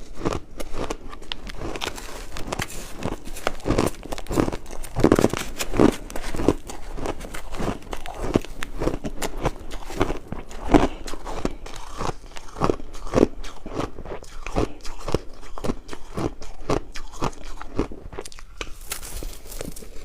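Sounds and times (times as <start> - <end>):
ice crunching in mouth: 0.0 - 20.0.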